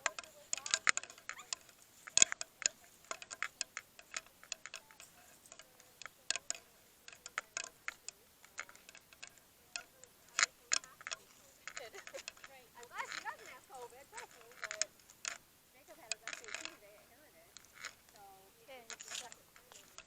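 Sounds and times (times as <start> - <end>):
sharp clicks and ticks: 0.0 - 20.0.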